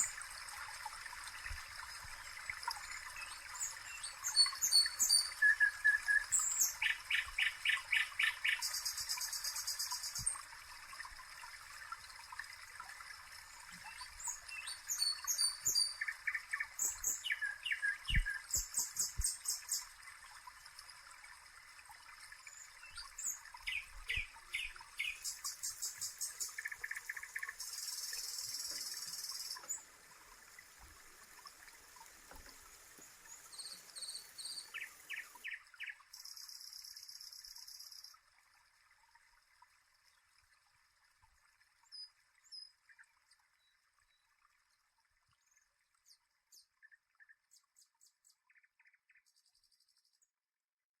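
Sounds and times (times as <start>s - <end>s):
faint steady hiss: 0.0s - 46.8s
small birds chirping trills: 1.4s - 10.5s, 13.6s - 20.0s, 22.4s - 29.9s, 33.0s - 38.2s.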